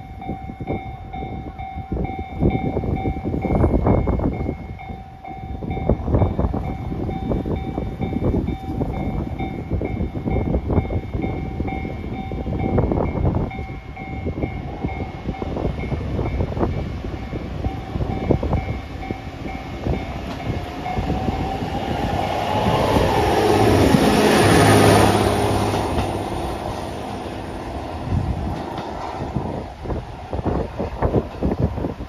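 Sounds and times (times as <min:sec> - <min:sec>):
diesel engine drone: 0:20.2 - 0:28.4.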